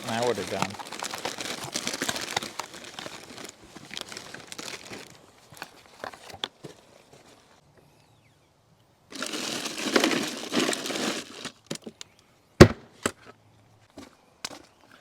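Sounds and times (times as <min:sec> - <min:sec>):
rustling and crinkling: 0:00.0 - 0:07.6, 0:09.1 - 0:12.0.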